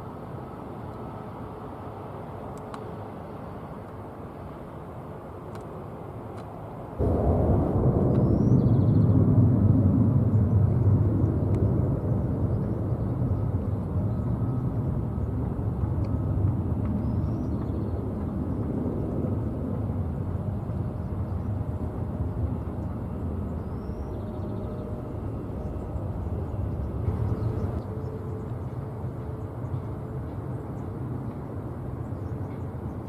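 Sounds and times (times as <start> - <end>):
jet airliner engines rumbling: 0.0 - 33.0.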